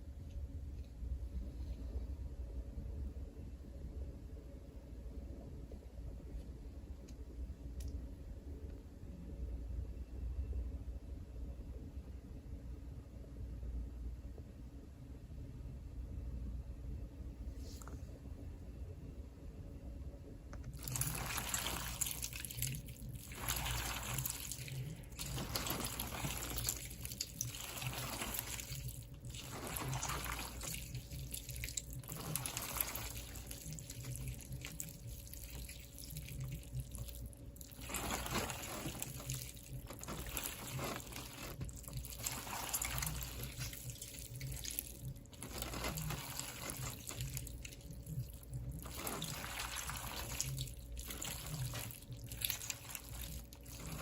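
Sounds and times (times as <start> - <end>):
low steady hum: 0.0 - 54.0
water running and splashing: 20.8 - 54.0.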